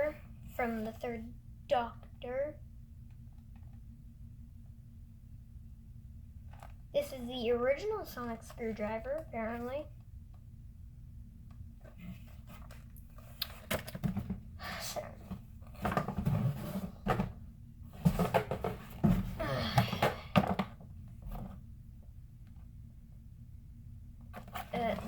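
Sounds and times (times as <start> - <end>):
plastic and cardboard rustling: 11.8 - 14.6, 15.2 - 21.6, 24.3 - 25.0.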